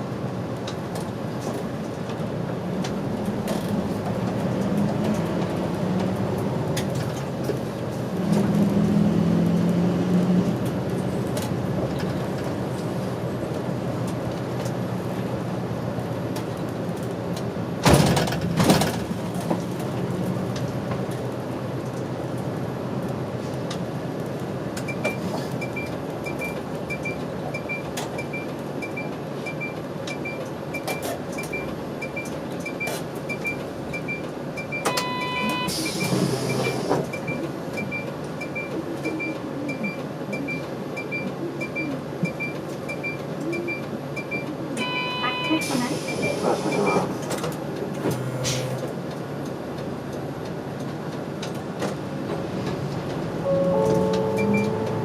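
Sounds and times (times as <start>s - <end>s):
bus engine running: 0.0s - 55.0s
short electronic beep: 34.8s - 36.8s, 44.8s - 47.0s, 53.4s - 55.0s.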